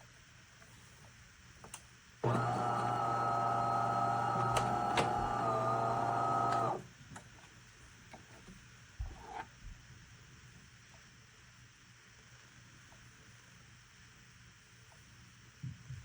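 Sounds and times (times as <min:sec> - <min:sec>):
espresso machine humming: 0:02.2 - 0:06.9.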